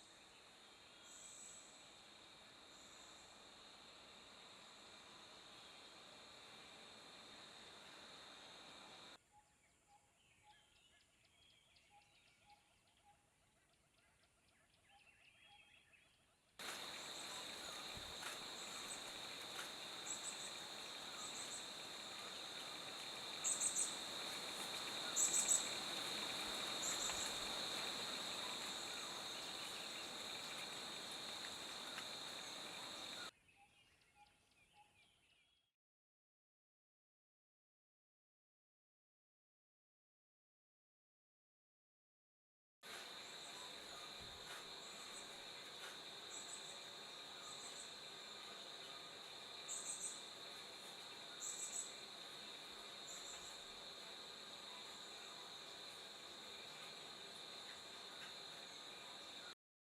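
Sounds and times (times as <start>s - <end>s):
insect-like drone: 0.0s - 9.2s, 16.6s - 33.3s, 42.9s - 59.6s
hiss: 1.0s - 9.2s, 16.6s - 33.3s, 42.9s - 59.6s.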